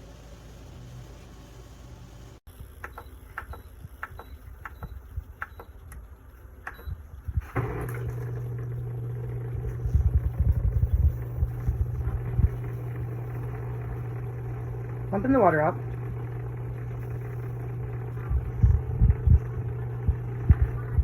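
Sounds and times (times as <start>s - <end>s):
dishwasher pump humming: 6.7s - 21.0s.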